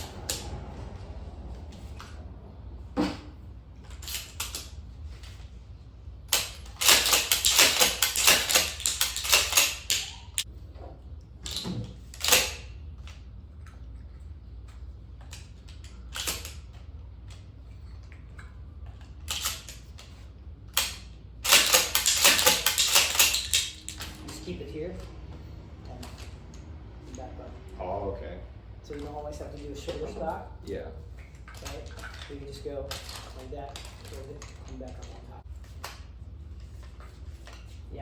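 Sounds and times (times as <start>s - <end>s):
shotgun metallic clicks and clatter: 3.9s - 5.4s, 6.3s - 10.5s, 11.4s - 12.7s, 15.8s - 16.6s, 19.2s - 20.1s, 20.7s - 24.4s.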